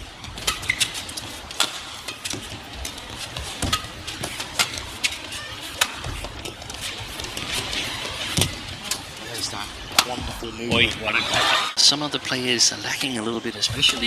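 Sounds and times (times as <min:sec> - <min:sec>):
arena crowd noise: 0:00.0 - 0:14.0
shoes squeaking on court: 0:00.2 - 0:09.2
rackets striking shuttlecock: 0:00.4 - 0:06.6, 0:08.3 - 0:09.0.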